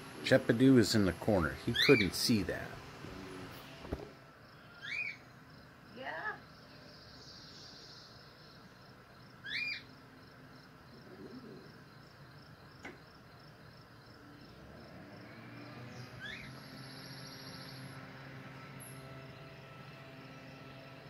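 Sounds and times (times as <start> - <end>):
bird whistled chirp: 4.7 - 5.2, 9.4 - 9.9, 16.2 - 17.9.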